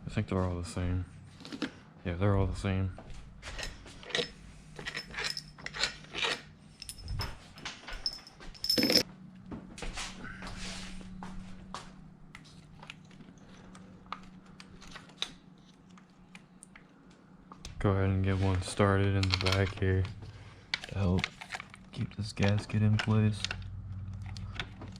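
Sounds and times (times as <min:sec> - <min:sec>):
small metal parts clinking: 0:03.5 - 0:09.0
loud ringing metal clink: 0:08.0 - 0:09.0.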